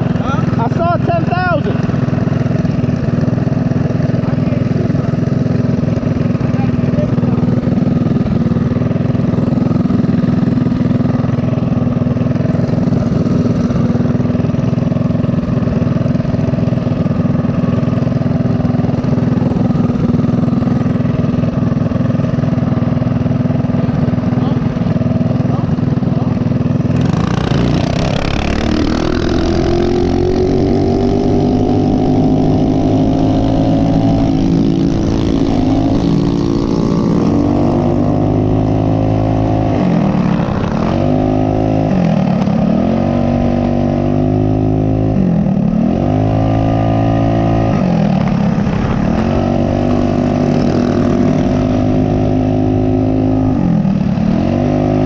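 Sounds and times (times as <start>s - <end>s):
mini bike engine revving: 0.0s - 55.0s.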